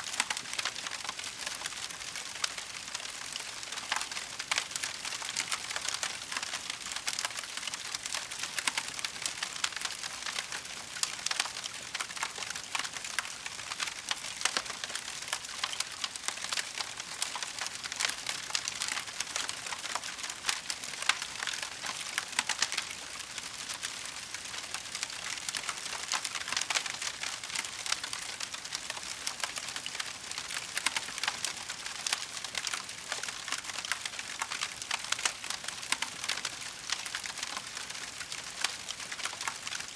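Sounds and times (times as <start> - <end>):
wood fire crackling: 9.3 - 39.9.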